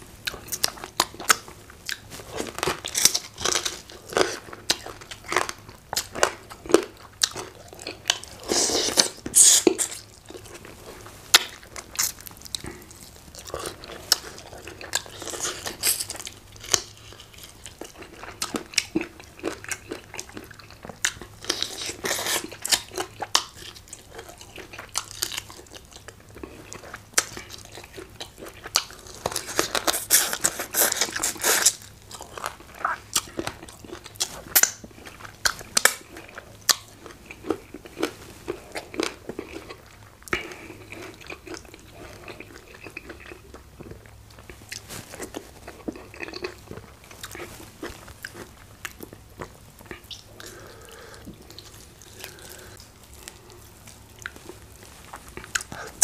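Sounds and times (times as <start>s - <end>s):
chewing crunches and wet clicks: 0.2s - 10.8s, 11.4s - 56.0s.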